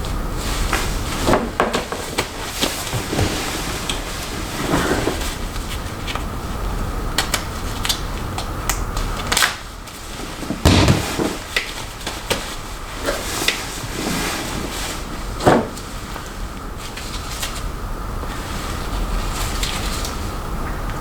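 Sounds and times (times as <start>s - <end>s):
steady low hum: 0.0s - 21.0s
heavy thump: 10.4s - 11.4s.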